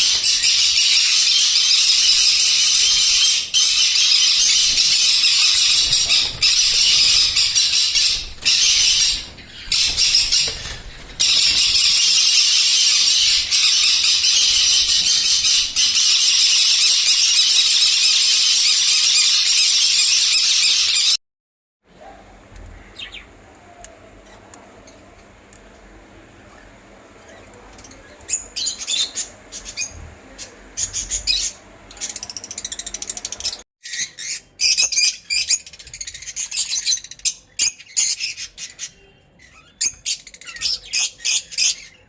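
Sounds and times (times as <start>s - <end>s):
parrots chattering and screeching: 0.0s - 21.2s.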